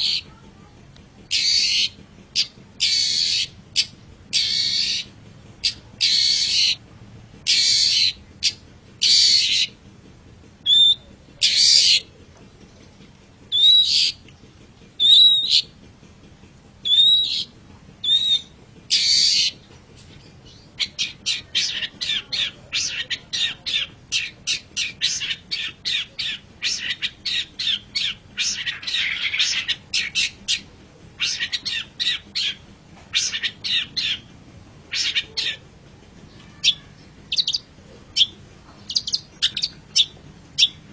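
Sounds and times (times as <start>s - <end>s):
fast chattering bird notes: 0.0s - 0.4s, 1.2s - 6.8s, 7.4s - 9.8s, 10.6s - 12.1s, 12.7s - 15.8s, 16.8s - 35.6s, 36.4s - 40.9s
shrike harsh raspy calls: 1.3s - 6.8s, 7.4s - 9.8s, 10.7s - 12.0s, 13.5s - 14.2s, 16.8s - 19.6s, 20.8s - 34.3s, 34.9s - 35.6s, 36.4s - 40.8s.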